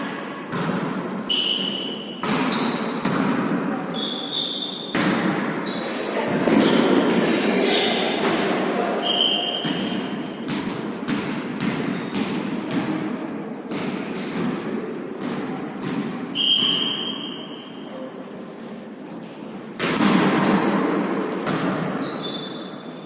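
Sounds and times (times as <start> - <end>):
shoe squeaks: 1.3 - 3.0, 3.9 - 5.0, 5.6 - 7.0, 7.6 - 8.1, 9.0 - 10.1, 16.4 - 18.2, 21.6 - 23.0
volleyball thuds and bounces: 2.2 - 3.6, 9.5 - 13.1.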